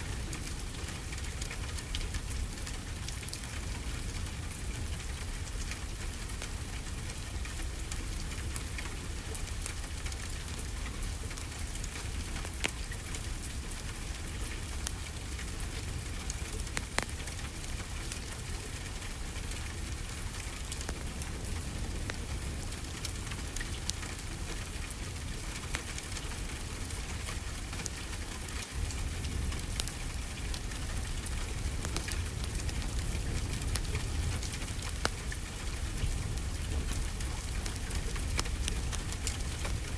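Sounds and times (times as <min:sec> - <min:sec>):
steady rainfall: 0:00.0 - 0:39.9
wood fire crackling and popping: 0:00.0 - 0:39.9.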